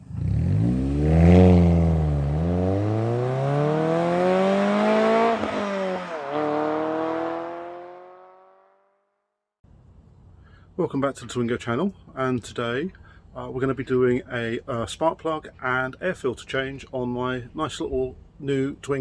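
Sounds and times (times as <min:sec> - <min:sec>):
car engine accelerating hard: 0:00.0 - 0:08.8.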